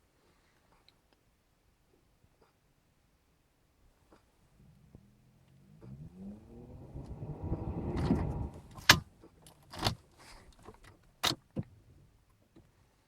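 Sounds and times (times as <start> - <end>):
diesel engine cranking and starting: 4.6 - 10.9.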